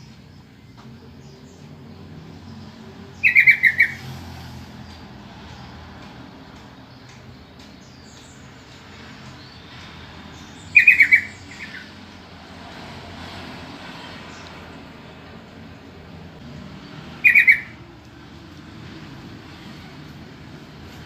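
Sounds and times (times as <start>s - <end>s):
bird call notes: 3.2s - 4.1s, 10.7s - 11.9s, 17.1s - 17.8s.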